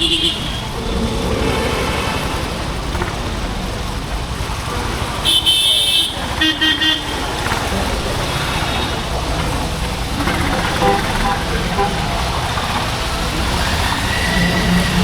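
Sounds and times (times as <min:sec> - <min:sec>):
long high-pitched car horn: 0:00.0 - 0:00.8, 0:05.2 - 0:07.4, 0:10.7 - 0:12.3
motorcycle engine rumble: 0:00.0 - 0:15.0.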